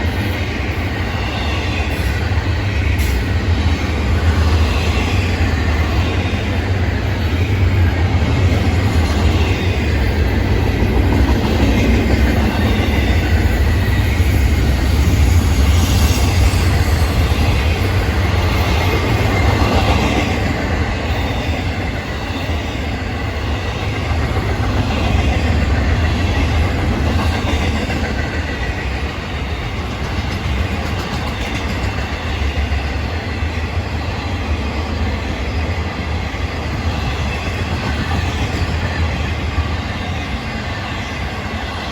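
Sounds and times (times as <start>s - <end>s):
freight train wheels rumbling: 0.0s - 41.9s.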